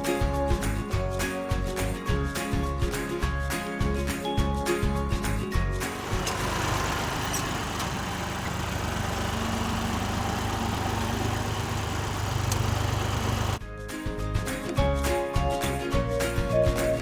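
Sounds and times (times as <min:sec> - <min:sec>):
vehicle engine running: 0:05.8 - 0:13.6
constant rushing noise: 0:05.9 - 0:13.6.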